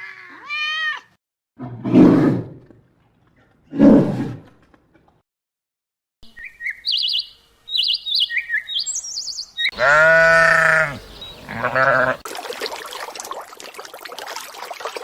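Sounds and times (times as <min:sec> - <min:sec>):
small bird singing: 0:06.3 - 0:12.2
big cat roaring: 0:09.8 - 0:12.2.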